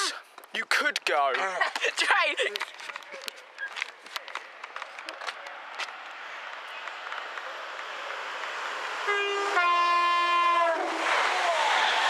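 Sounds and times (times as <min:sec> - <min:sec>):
train rushing past: 0:05.6 - 0:12.0
two-tone train horn: 0:09.0 - 0:11.0.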